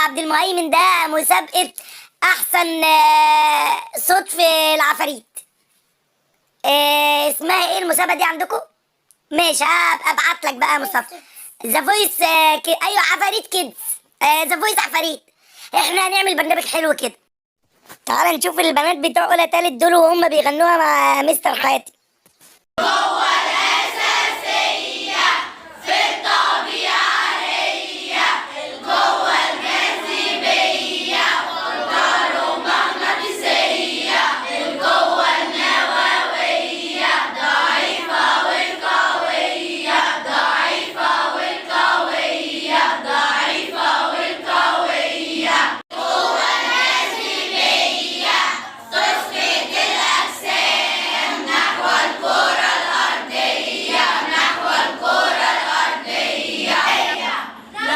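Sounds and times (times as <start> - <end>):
girls singing in chorus: 22.8 - 57.9.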